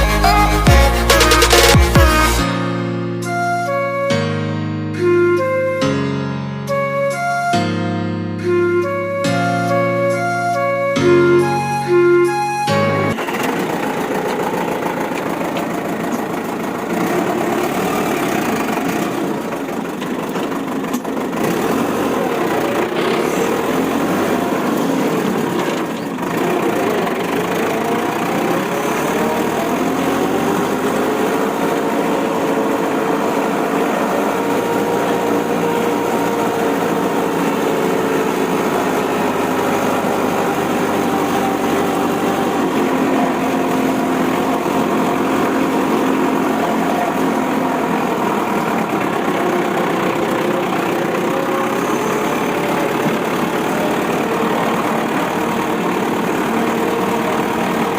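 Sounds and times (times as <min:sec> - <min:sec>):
vehicle engine running: 0:08.4 - 0:57.9.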